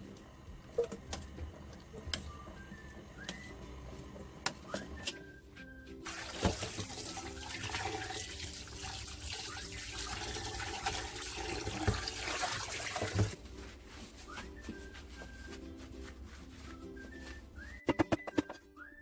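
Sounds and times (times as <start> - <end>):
soft background music: 0.0 - 19.0
tap running into sink: 6.1 - 9.1, 10.1 - 13.4.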